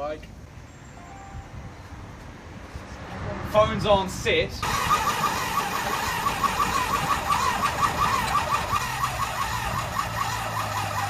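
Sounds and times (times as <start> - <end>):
electric starter cranking engine: 4.6 - 11.0.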